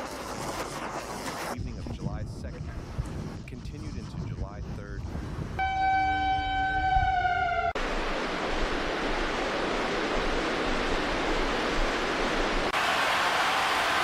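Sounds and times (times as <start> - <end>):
siren high tone: 5.6 - 7.8
steady rushing noise: 7.7 - 14.0.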